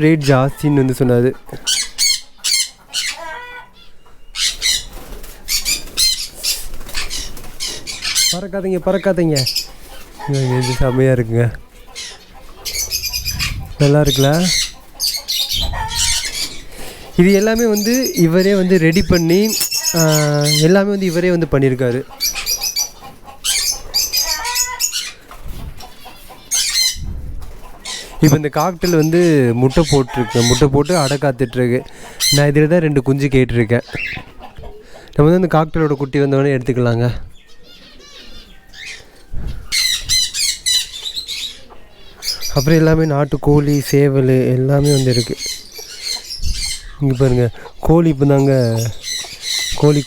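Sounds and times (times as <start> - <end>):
cockatiels squawking: 1.6 - 32.6, 33.6 - 34.9, 37.4 - 50.0
wings flapping: 4.4 - 8.3, 21.4 - 31.1.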